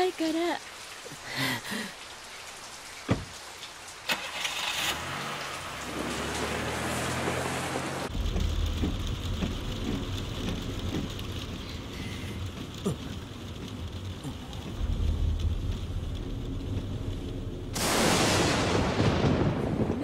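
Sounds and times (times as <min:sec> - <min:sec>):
steady rain: 0:00.0 - 0:20.0
car engine starting and running: 0:04.0 - 0:19.1.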